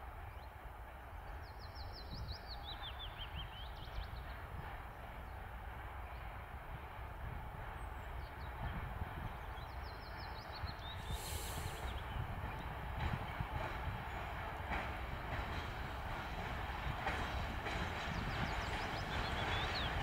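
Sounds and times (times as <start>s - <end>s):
electric freight train rumbling: 0.0s - 20.0s
songbird singing: 1.2s - 6.9s, 7.7s - 20.0s.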